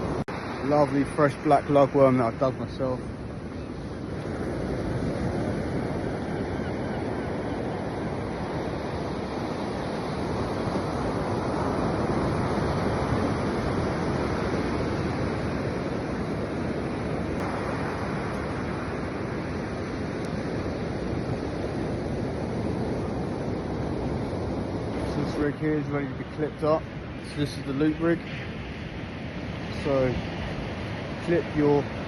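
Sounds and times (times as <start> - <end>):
surf washing onto beach: 0.0 - 32.0
wind on microphone: 0.0 - 32.0.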